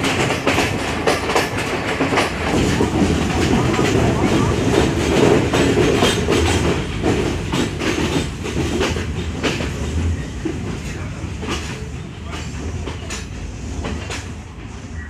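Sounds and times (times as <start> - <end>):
rail clicks: 0.0 - 15.0
train wheels rumbling on track: 0.0 - 15.0.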